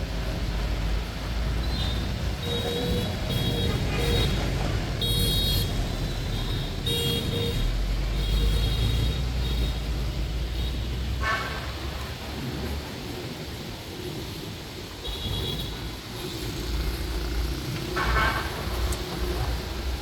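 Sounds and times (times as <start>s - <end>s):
rain hiss on wet roads: 0.0s - 20.0s
traffic engine rumble: 0.0s - 20.0s
vehicle horn beeps: 1.6s - 10.0s.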